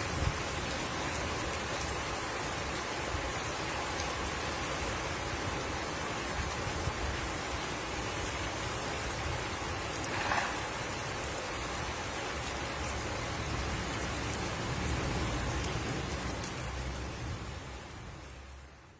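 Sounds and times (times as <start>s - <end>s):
heavy rain falling: 0.0s - 18.9s.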